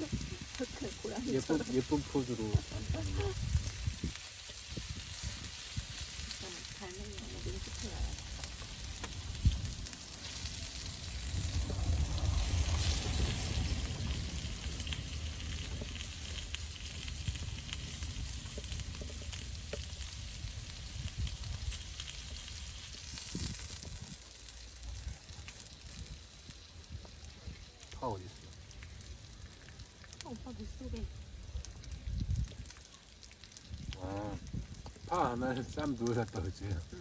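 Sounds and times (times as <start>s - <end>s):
low rumble: 0.0s - 24.2s
food sizzling in a pan: 0.0s - 37.0s.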